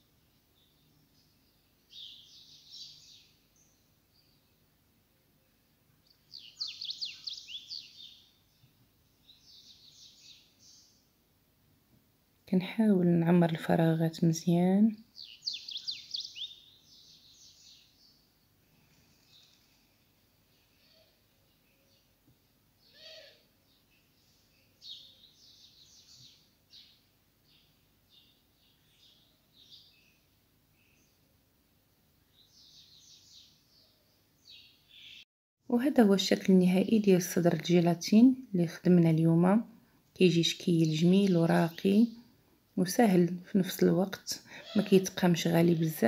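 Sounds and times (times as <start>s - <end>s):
songbird singing: 0.0s - 11.2s, 12.5s - 35.3s, 36.0s - 46.0s
small bird chirping: 0.2s - 4.6s, 6.0s - 11.1s, 15.0s - 31.2s, 32.3s - 35.3s.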